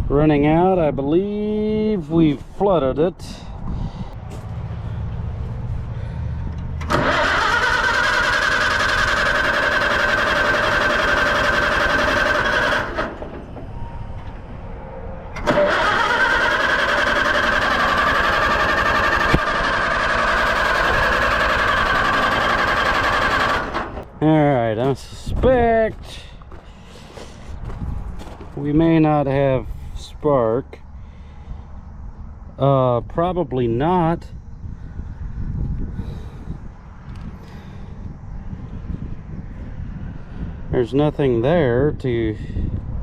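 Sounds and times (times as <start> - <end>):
tractor engine cranking: 4.3 - 14.6, 15.3 - 24.2.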